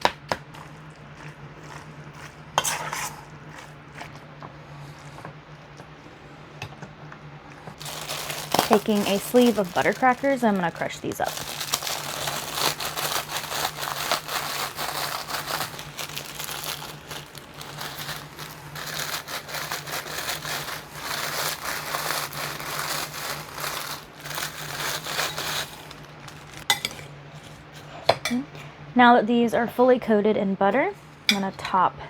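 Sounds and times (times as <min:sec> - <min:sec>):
crackers being crushed by hand: 0:07.7 - 0:27.0.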